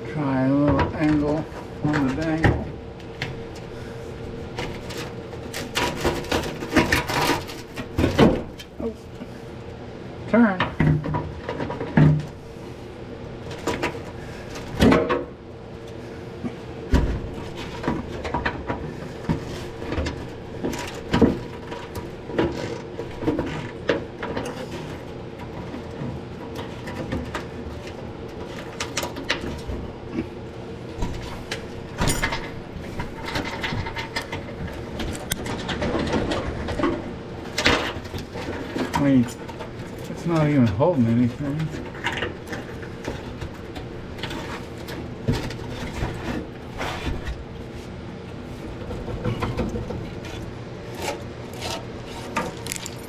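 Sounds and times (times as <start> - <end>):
metallic clanks of hand tools: 52.4 - 53.0.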